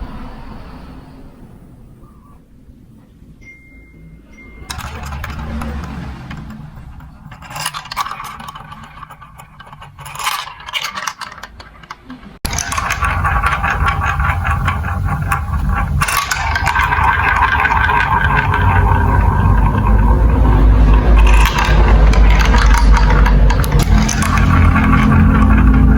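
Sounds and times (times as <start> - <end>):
marbles rattling along a marble run: 4.6 - 25.9.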